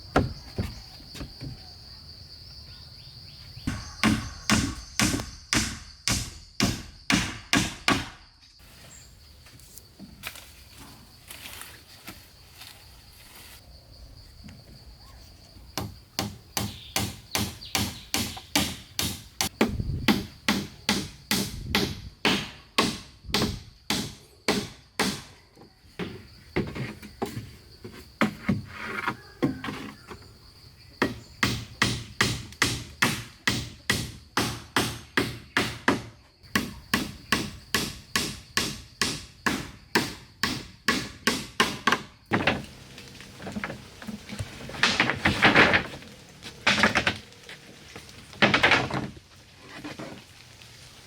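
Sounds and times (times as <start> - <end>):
faint insect trill: 0.0 - 7.2, 8.1 - 21.5, 23.6 - 34.4
hand tool striking wood: 0.1 - 1.6, 3.7 - 8.2, 15.8 - 25.3, 31.0 - 42.7.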